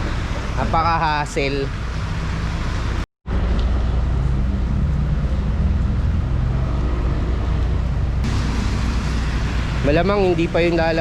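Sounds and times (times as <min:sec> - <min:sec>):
low rumble: 0:01.8 - 0:11.0
heavy rain falling: 0:08.3 - 0:09.8.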